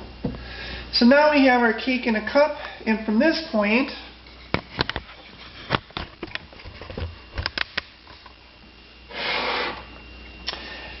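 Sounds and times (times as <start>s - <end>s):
rustling scrape: 5.1s - 5.9s.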